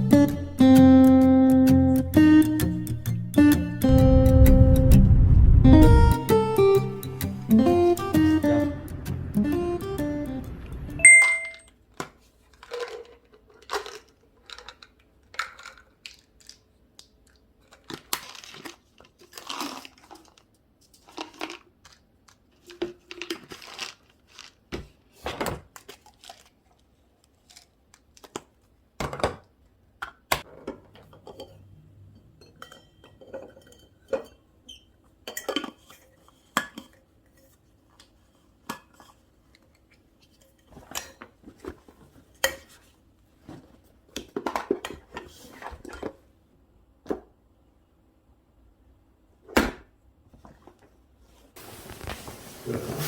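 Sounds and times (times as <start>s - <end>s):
objects clicking and clattering: 12.5s - 24.6s
rustling and crinkling: 17.6s - 28.7s, 37.3s - 46.3s, 50.3s - 53.0s.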